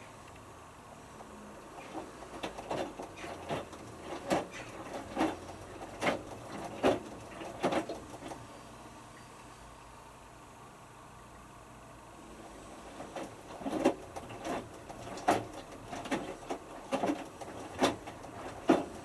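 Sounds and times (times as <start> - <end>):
washing machine low hum: 0.0 - 8.7, 11.8 - 19.0
washing machine drum tumbling: 1.7 - 8.3, 12.8 - 19.0.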